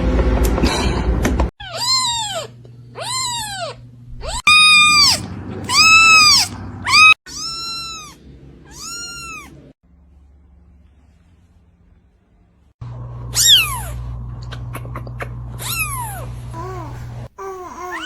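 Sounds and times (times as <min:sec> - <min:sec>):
cat meowing: 0:01.6 - 0:09.7.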